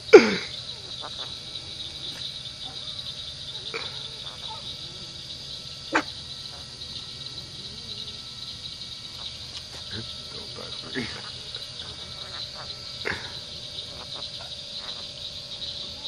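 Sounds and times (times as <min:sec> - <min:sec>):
high-pitched insect buzz: 0:00.0 - 0:16.0
parrot squawking: 0:11.0 - 0:15.1.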